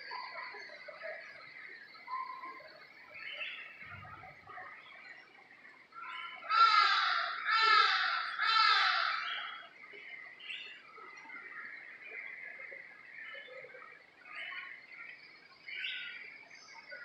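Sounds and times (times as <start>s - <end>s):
faint birds chirping: 0.0s - 17.0s
loud bird calls: 6.0s - 12.4s.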